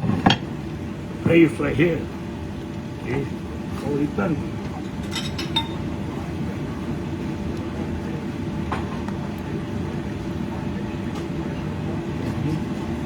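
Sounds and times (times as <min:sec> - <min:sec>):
range hood fan rumble: 0:00.0 - 0:13.0
dishware clinking: 0:04.8 - 0:05.9.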